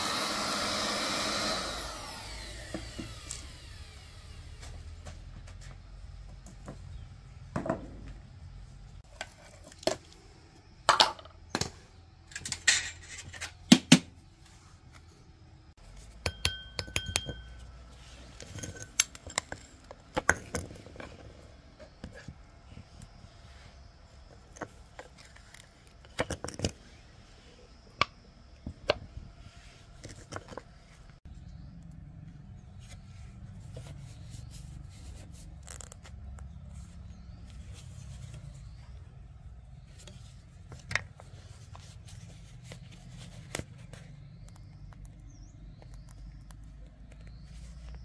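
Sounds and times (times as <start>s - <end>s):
metal tools clinking: 12.3s - 13.6s.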